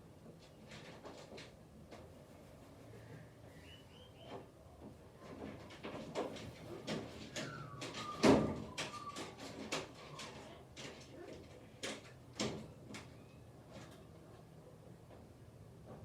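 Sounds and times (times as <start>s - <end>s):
thin whistle-like call: 3.5s - 4.3s.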